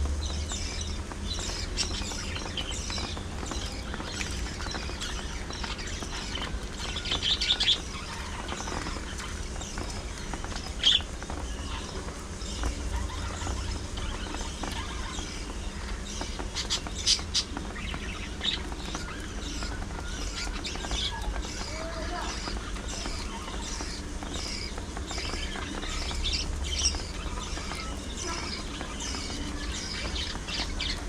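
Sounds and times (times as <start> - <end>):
budgerigars chirping and chattering: 0.0 - 31.0
sharp bird calls: 0.2 - 31.0.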